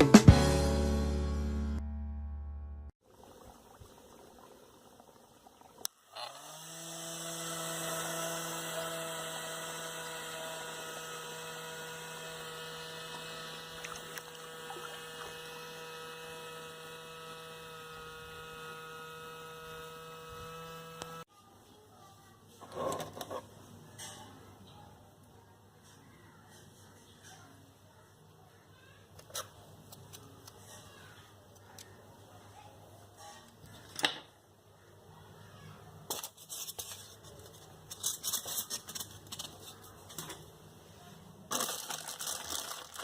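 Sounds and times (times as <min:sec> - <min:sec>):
small electric motor humming: 0:06.0 - 0:21.3.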